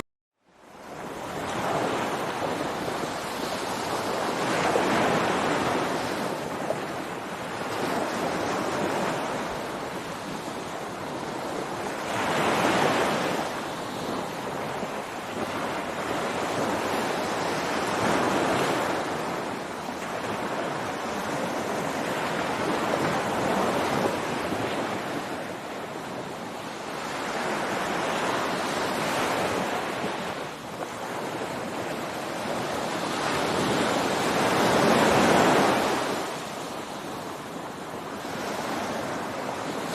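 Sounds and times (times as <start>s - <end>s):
ocean surf breaking on beach: 0.5s - 39.9s.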